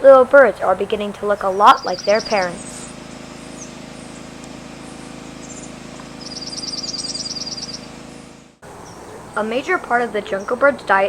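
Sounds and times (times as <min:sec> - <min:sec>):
bird trilling: 0:01.5 - 0:09.5
faint bird chirps: 0:01.8 - 0:07.9.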